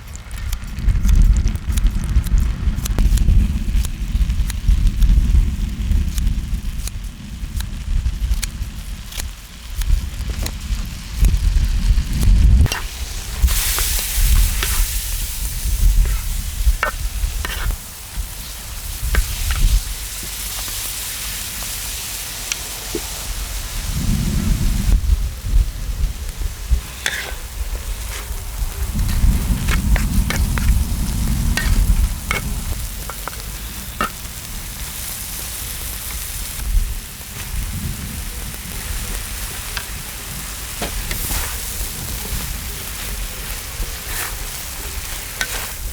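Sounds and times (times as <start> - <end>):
food sizzling on a griddle: 0.0 - 45.9
stirring clicks and scrapes: 12.7 - 21.2, 26.7 - 35.0, 40.8 - 45.9
utensil scraping and clicking: 15.9 - 17.8, 26.9 - 27.4, 28.0 - 34.3
low rumble: 23.2 - 43.9.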